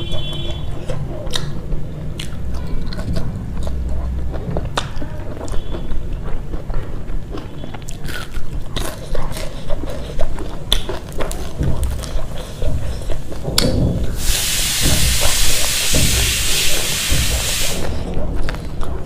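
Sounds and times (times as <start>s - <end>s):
chewing and biting: 0.0s - 19.0s
wet mouth clicks and smacks: 1.3s - 4.9s
steady hiss: 14.1s - 18.1s.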